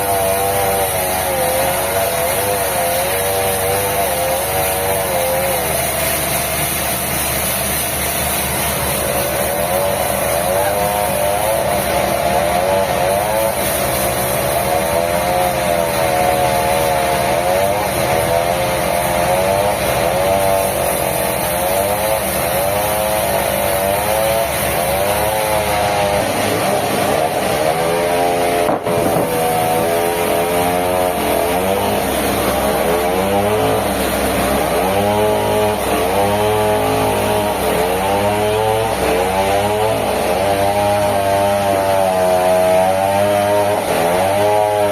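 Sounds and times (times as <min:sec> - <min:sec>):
sawmill saw cutting wood: 0:00.0 - 0:44.9.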